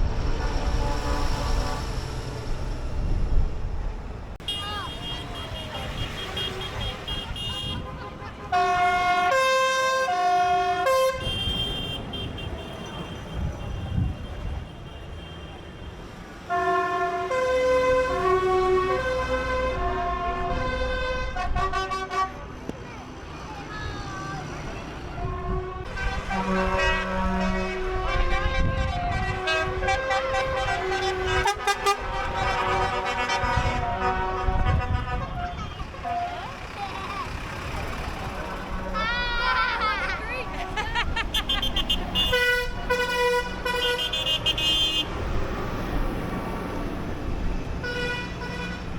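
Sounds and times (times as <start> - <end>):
passing engines rumbling: 0.0 - 48.9
truck horns tooting: 4.4 - 22.6, 24.9 - 48.9
low engine rumble: 24.3 - 43.8.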